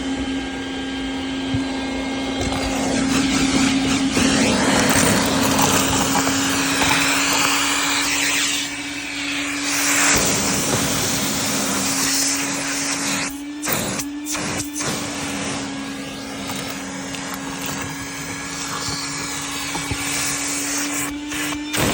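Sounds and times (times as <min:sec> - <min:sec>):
vacuum cleaner running: 0:00.0 - 0:21.9.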